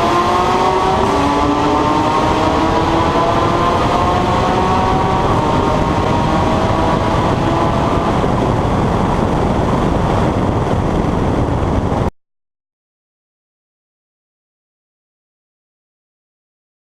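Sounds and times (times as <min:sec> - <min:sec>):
car engine driving: 0:00.0 - 0:12.1
road and wind noise: 0:00.0 - 0:12.1.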